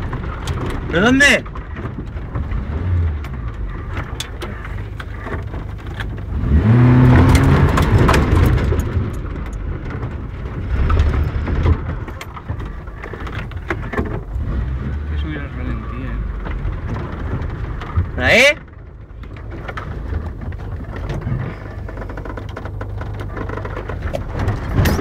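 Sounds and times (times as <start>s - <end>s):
knocks and rattles: 0.0s - 25.0s
off-road vehicle engine revving: 2.2s - 9.4s, 10.4s - 18.6s.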